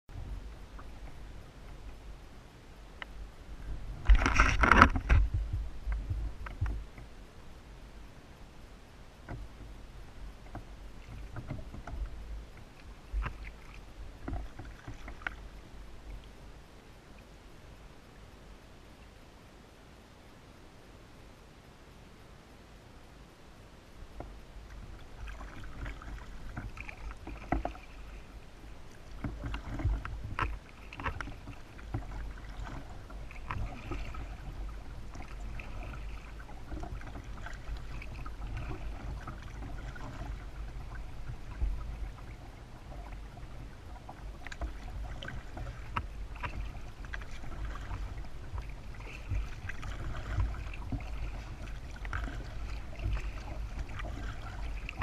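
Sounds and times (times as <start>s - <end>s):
steady low rumble: 0.0s - 21.5s, 22.2s - 55.0s
paddle splashing in water: 3.0s - 7.2s, 9.2s - 16.4s, 24.2s - 55.0s.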